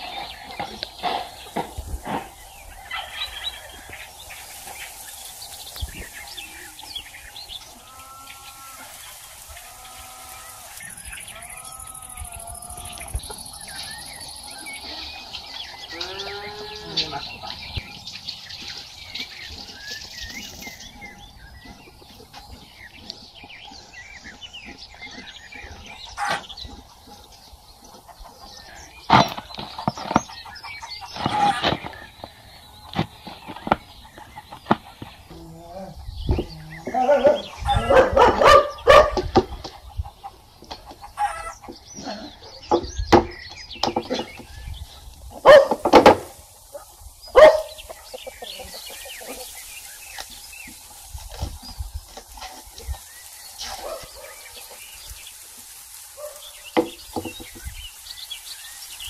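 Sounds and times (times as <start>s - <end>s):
small birds chirping: 0.0s - 59.0s
held bird call: 9.7s - 17.6s.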